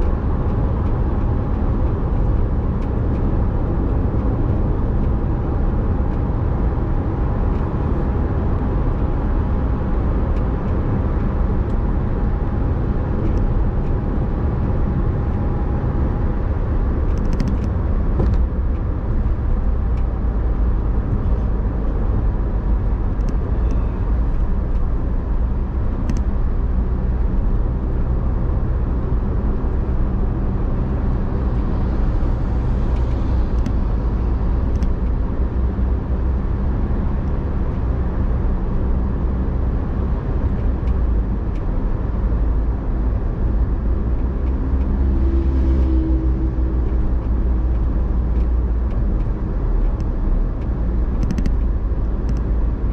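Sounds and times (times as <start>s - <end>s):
car engine and road rumble: 0.0s - 52.9s
light clicks: 26.0s - 26.3s, 33.0s - 33.8s, 34.7s - 35.0s, 46.9s - 52.5s.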